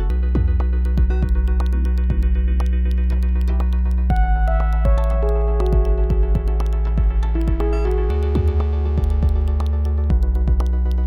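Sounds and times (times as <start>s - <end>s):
held synth notes: 0.0s - 11.0s
pitch-dropping drum hits: 4.1s - 10.8s.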